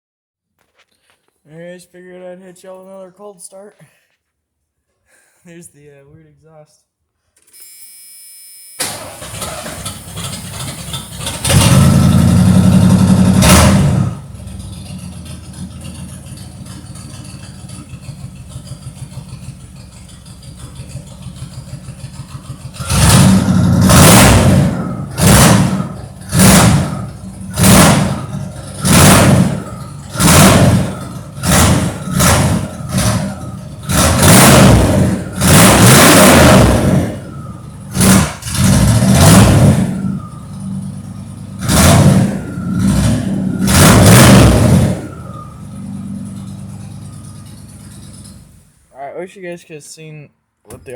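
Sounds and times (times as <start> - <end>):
engine idling and revving: 8.8 - 48.8.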